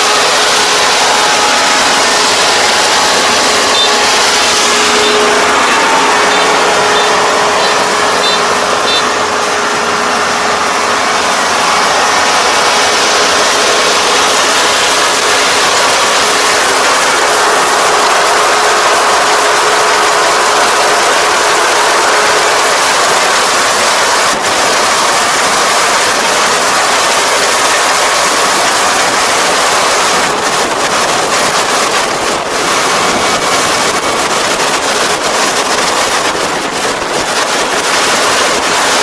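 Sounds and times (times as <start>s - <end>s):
engine hum: 0.0s - 39.0s
loud mechanical noise: 0.0s - 39.0s.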